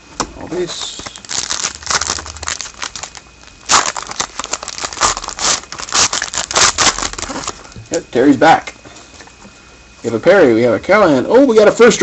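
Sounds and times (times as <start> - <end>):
plastic wrapper tearing and crinkling: 0.8 - 7.8.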